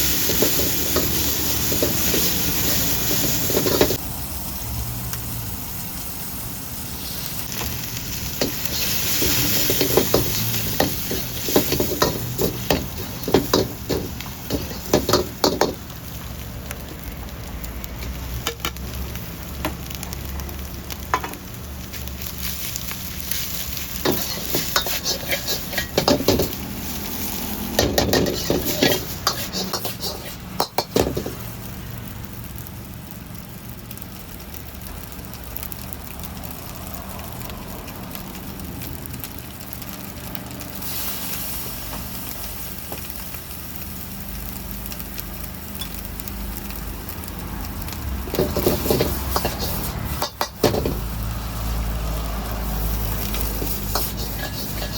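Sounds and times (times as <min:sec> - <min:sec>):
food sizzling in a wok: 0:00.0 - 0:54.9
metal spatula clanking on pan: 0:08.4 - 0:15.8, 0:24.0 - 0:26.6, 0:48.3 - 0:51.0.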